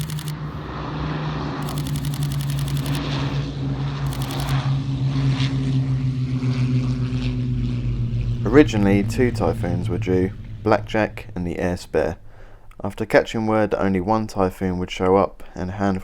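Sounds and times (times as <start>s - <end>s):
camera shutter bursts: 0.0s - 0.4s, 1.6s - 3.0s, 4.1s - 4.6s
propeller aircraft engine drone: 0.0s - 15.6s.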